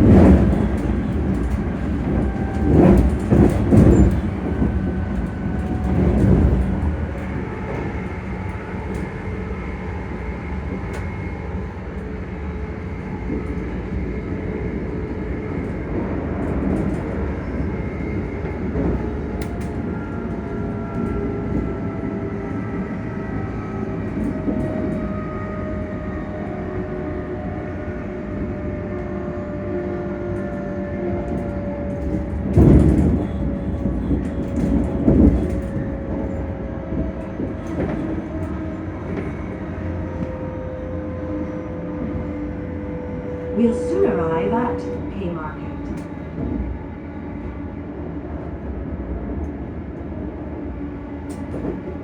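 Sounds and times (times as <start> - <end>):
wheels rumbling on track: 0.0 - 52.0
traction motors humming and whining: 17.4 - 48.8.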